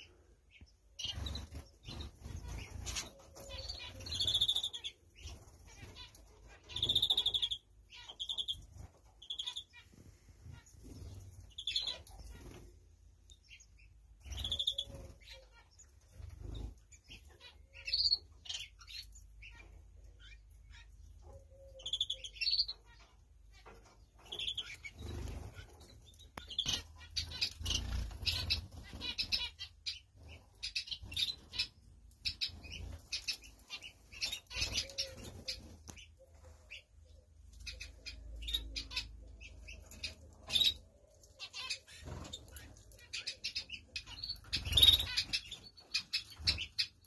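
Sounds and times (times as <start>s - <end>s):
finches chirping: 0.0s - 12.7s, 13.3s - 47.0s
wings fluttering in cage: 1.0s - 7.6s, 23.6s - 36.5s.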